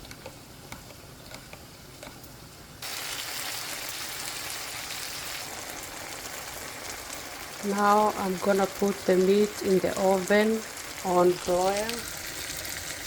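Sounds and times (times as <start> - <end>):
chicken frying in a pan: 2.8 - 13.0.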